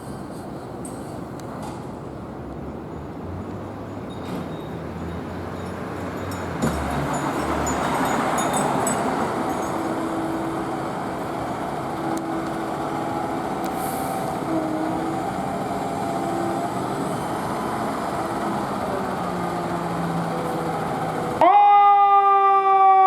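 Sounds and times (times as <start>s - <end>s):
street traffic: 0.0s - 23.0s
heavy truck engine running: 5.5s - 21.5s.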